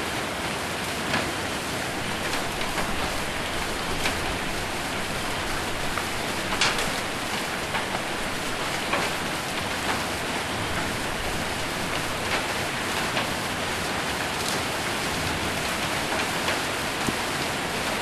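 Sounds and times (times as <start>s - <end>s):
hail and rain pelting a roof: 0.0s - 18.0s
sharp hail hits: 1.9s - 13.5s.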